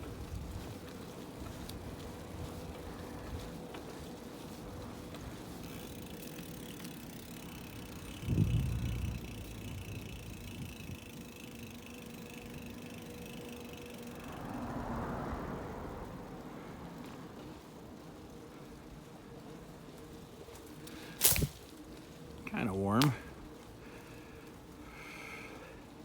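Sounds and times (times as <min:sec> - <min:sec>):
bicycle tyre road rumble: 0:00.0 - 0:26.0
wind on microphone: 0:08.0 - 0:11.3.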